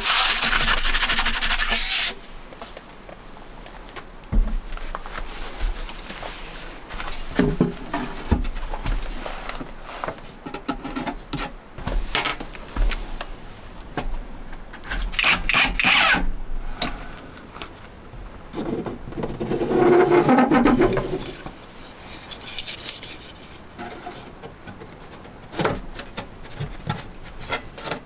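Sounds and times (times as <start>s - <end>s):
tool scraping: 19.4s - 24.4s.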